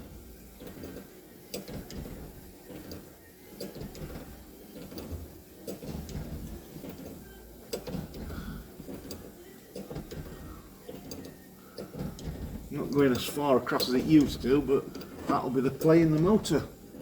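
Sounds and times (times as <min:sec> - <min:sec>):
wiper motor humming: 0:00.0 - 0:17.0
wiper arm clicking: 0:09.8 - 0:17.0.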